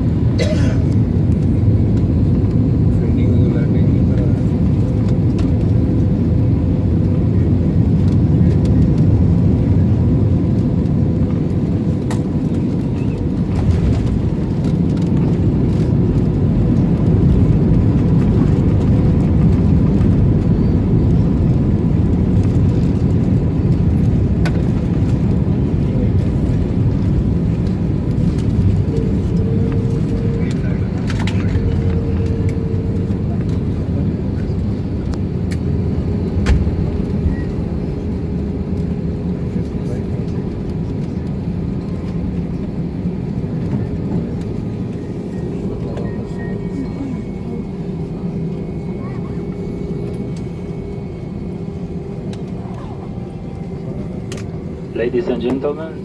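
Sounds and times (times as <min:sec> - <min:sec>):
airliner engines and airflow rumble: 0:00.0 - 0:56.0
faint steady whine: 0:25.8 - 0:35.6.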